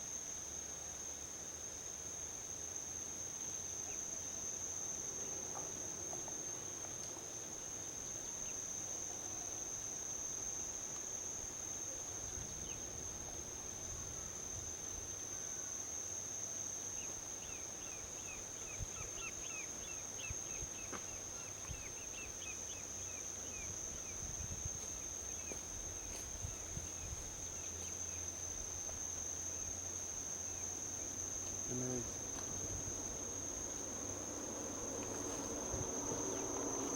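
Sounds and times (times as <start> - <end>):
crickets trilling: 0.0 - 36.9
distant highway traffic rumble: 31.1 - 36.9.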